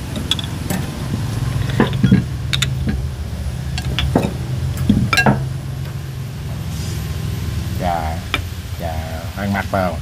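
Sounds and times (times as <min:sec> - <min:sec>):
low steady hum: 0:00.0 - 0:10.0
utensils clinking on ceramic bowls: 0:01.6 - 0:03.1, 0:03.7 - 0:05.5.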